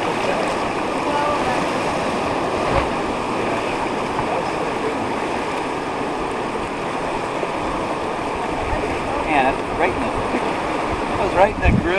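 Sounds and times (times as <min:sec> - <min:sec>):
whitewater rushing: 0:00.0 - 0:11.9
short thump: 0:02.6 - 0:03.1.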